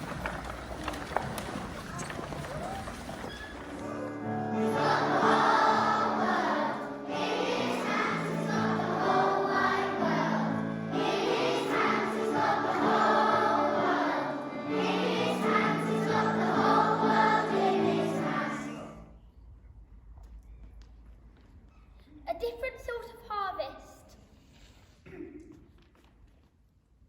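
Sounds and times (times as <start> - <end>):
choir singing: 3.8 - 19.1.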